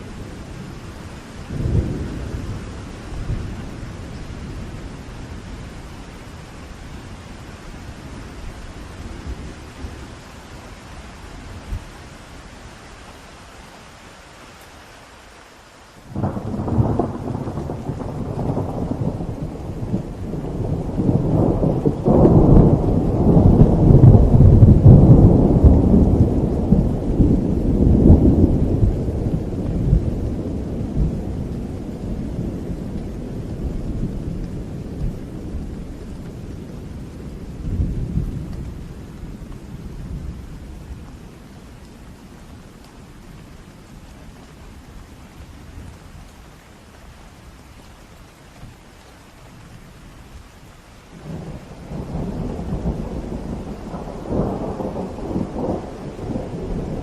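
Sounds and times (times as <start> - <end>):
rain: 0.0 - 57.0
thunder crack and rumble: 16.1 - 42.4, 51.2 - 57.0.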